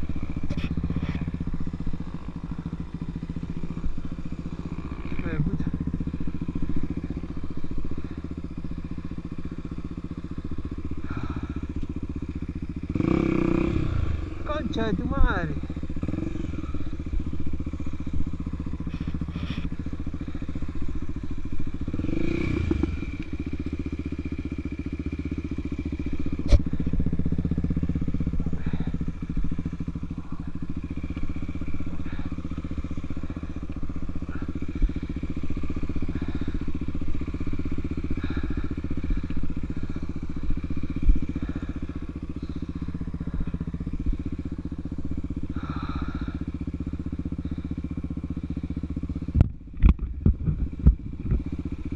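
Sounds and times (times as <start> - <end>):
motorcycle engine running: 0.0 - 51.9
clatter: 45.4 - 51.9.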